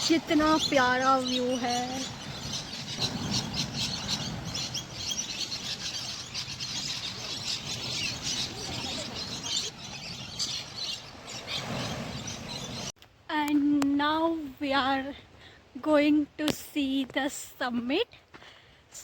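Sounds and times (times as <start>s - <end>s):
flock of birds chirping: 0.0s - 12.9s.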